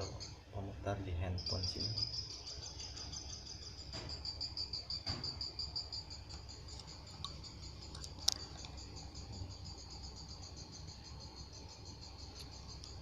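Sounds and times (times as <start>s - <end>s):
high pulsing cricket-like trill: 0.0s - 13.0s.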